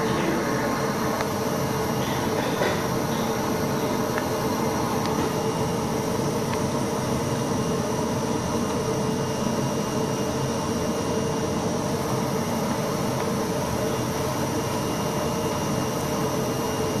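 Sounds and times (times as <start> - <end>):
cutting machine humming: 0.0 - 6.2.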